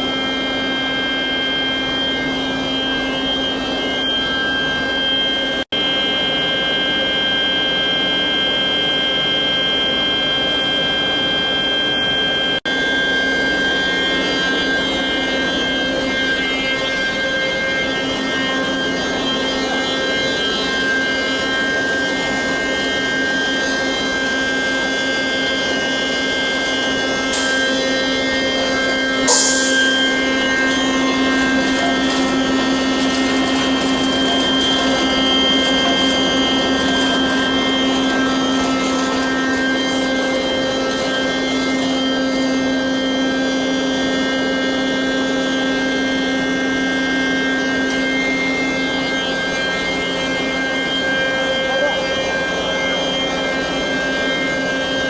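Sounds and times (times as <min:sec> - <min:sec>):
crusher machine humming and whining: 0:00.0 - 0:55.0.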